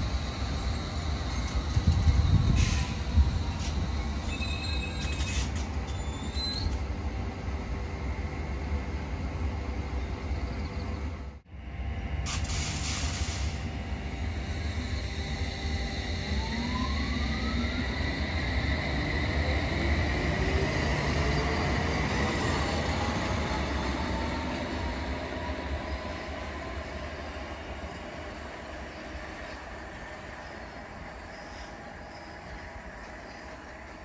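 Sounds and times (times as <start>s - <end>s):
train traction motors whining: 0.0s - 10.9s, 13.4s - 34.0s
wheels rumbling on rail: 0.0s - 34.0s.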